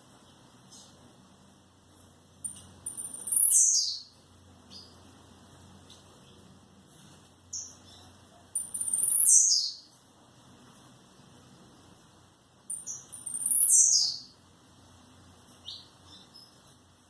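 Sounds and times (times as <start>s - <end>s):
songbird singing: 2.3s - 6.7s, 7.4s - 10.1s, 12.6s - 17.0s
short bird chirps: 12.7s - 14.3s.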